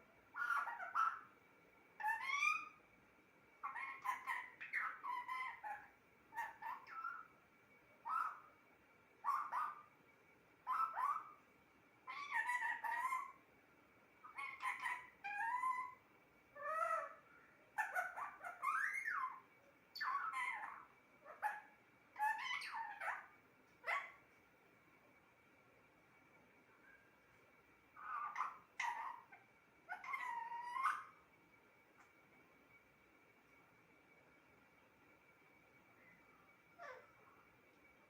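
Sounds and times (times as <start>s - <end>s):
parrot squawking: 0.3s - 1.3s, 2.0s - 2.8s, 3.6s - 7.3s, 8.0s - 8.5s, 9.2s - 9.9s, 10.6s - 11.4s, 12.1s - 13.4s, 14.2s - 16.0s, 16.6s - 17.2s, 17.8s - 24.2s, 28.0s - 31.2s, 36.8s - 37.1s.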